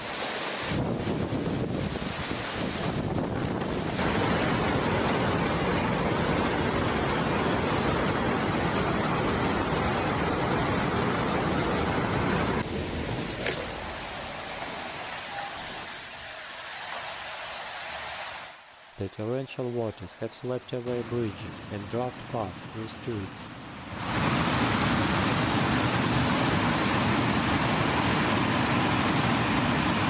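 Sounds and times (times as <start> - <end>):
floodwater rushing: 0.0 - 18.7.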